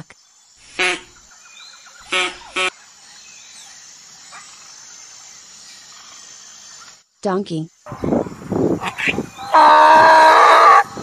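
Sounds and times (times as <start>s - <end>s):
duck quacking: 2.1s - 2.7s.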